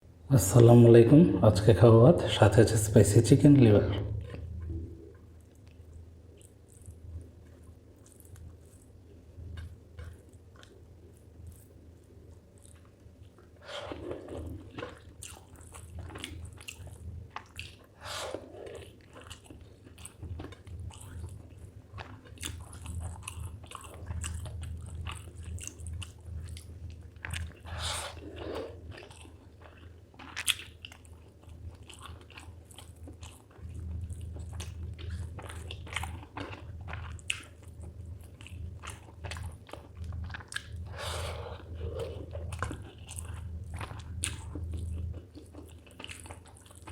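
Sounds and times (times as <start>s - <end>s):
steady low hum: 0.0s - 46.9s
person chewing and biting: 4.2s - 46.9s.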